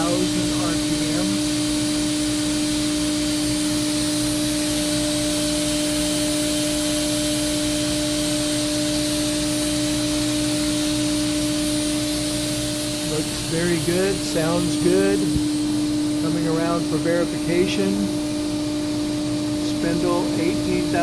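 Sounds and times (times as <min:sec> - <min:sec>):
machine spindle high hum: 0:00.0 - 0:21.0
airy hiss: 0:12.9 - 0:18.2.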